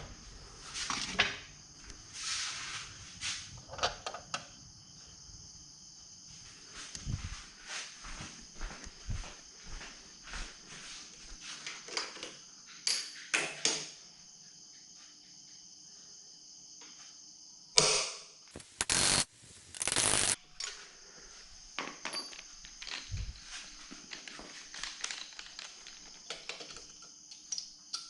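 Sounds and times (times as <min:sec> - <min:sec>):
small clicks: 0:18.6 - 0:20.8
small electric drill running: 0:18.9 - 0:19.2, 0:19.8 - 0:20.4.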